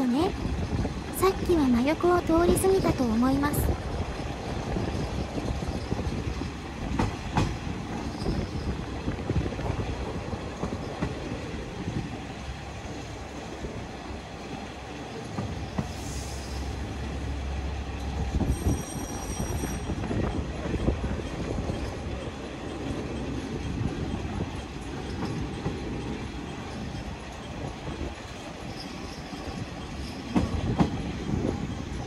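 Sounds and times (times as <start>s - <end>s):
diesel railcar rumbling: 0.0s - 32.0s
wheels clacking over rail joints: 4.0s - 12.1s, 18.0s - 32.0s
high wheel squeal: 8.0s - 8.8s, 18.4s - 20.0s.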